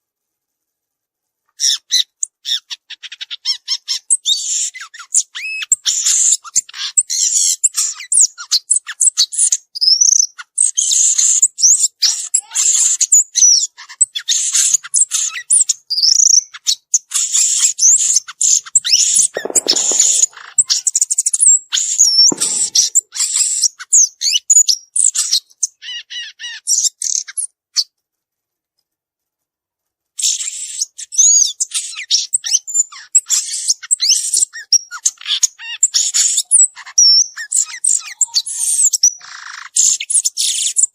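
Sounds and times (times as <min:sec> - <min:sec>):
bird singing high chirps: 0:19.4 - 0:20.9.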